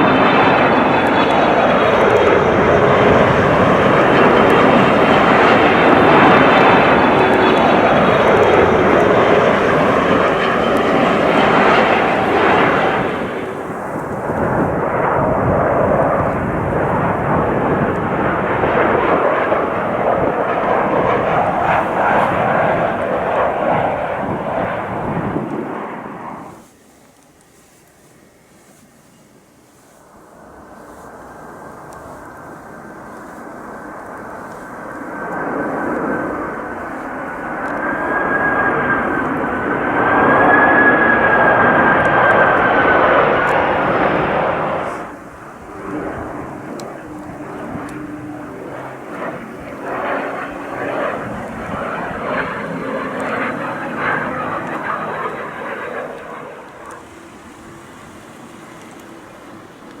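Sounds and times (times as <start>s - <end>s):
rushing air noise: 0.0s - 28.9s, 29.6s - 59.6s
jet airliner engine whine: 0.0s - 60.0s.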